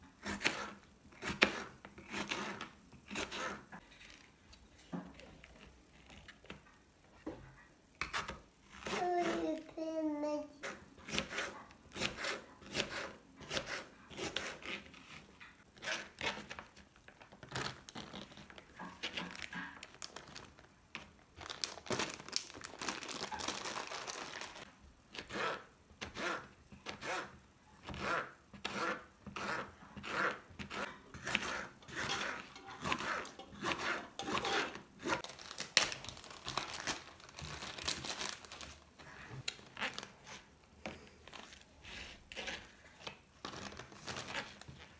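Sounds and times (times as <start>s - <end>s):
plastic packaging crinkling: 16.4s - 24.7s, 34.1s - 40.5s, 43.4s - 44.9s.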